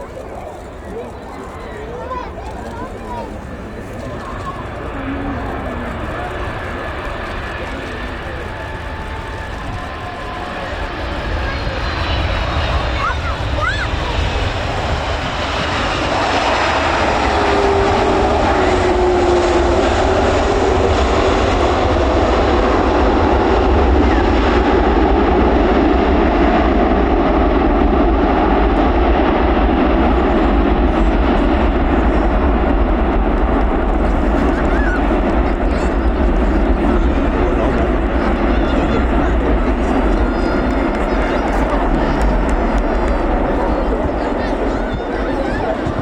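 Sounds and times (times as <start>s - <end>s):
jet engine roar: 0.0s - 46.0s
deep rumble: 1.4s - 46.0s
falling jet whine: 3.0s - 25.3s, 28.4s - 46.0s.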